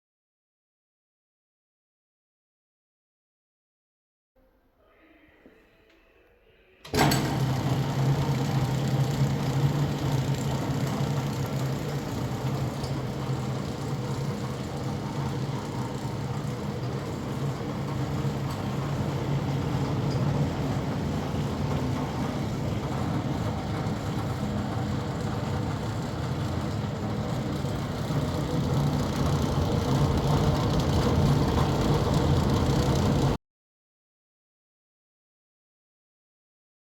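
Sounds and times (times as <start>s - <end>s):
skinning machine running: 6.9s - 33.4s.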